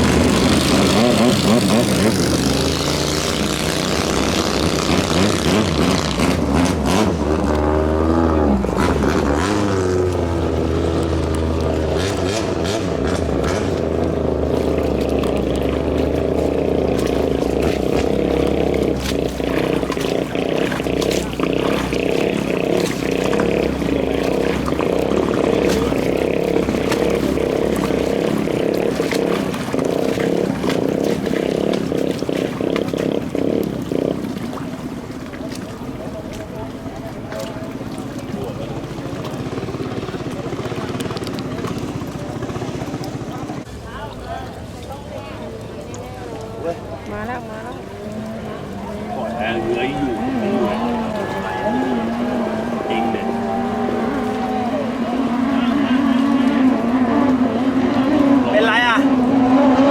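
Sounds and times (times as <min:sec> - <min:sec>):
racing boat engines revving: 0:00.0 - 0:59.9
steady low rumble: 0:07.1 - 0:43.7.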